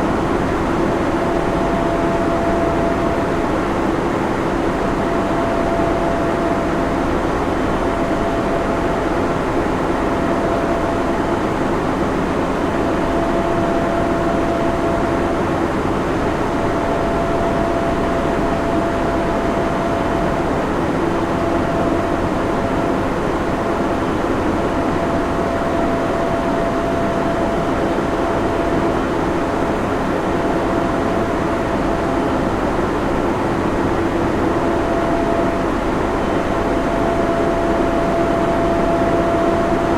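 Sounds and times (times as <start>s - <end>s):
cooling fans rushing: 0.0s - 39.9s
thin whine: 33.6s - 39.9s.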